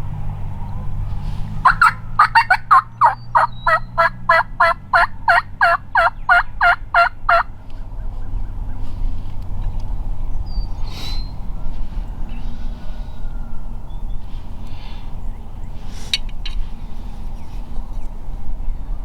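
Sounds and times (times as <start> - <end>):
turkey yelps: 1.6 - 7.5.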